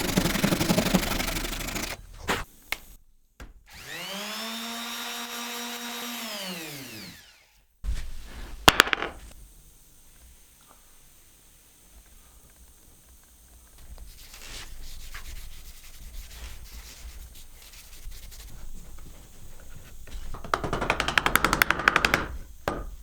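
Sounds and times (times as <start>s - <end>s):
wood being sanded by hand: 0.0s - 2.3s, 14.0s - 20.3s.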